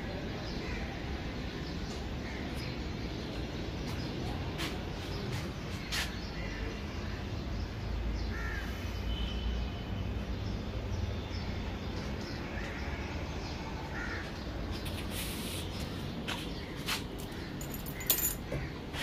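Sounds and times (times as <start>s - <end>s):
bird cawing: 8.3s - 8.8s, 13.9s - 14.4s.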